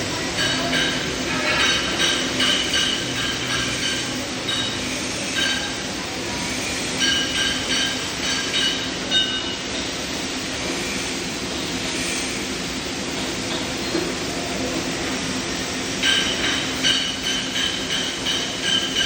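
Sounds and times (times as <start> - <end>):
workshop machine hum and hiss: 0.0 - 19.0.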